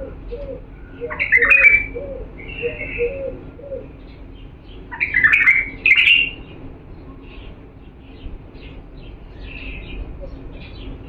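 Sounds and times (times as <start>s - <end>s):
dove cooing: 0.0s - 7.6s, 9.0s - 11.0s
bulbul singing: 0.0s - 11.0s.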